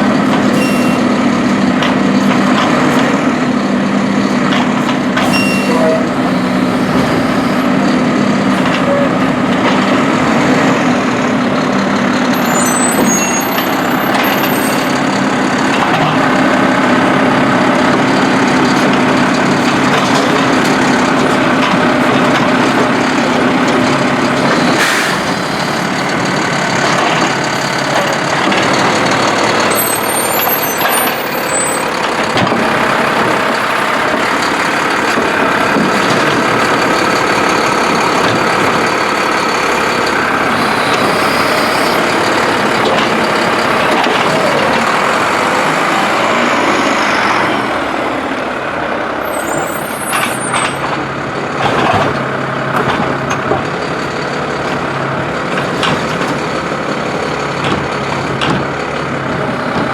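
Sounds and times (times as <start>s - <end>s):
garbage truck engine running: 0.0s - 59.9s.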